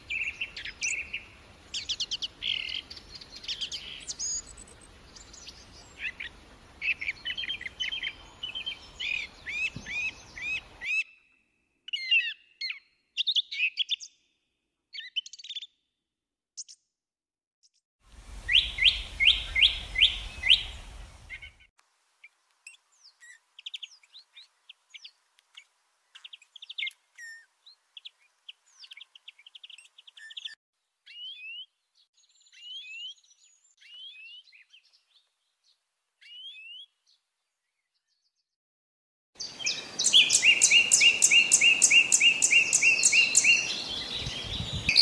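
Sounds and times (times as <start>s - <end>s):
songbirds singing: 0.0s - 14.3s, 18.4s - 38.5s, 39.4s - 45.0s.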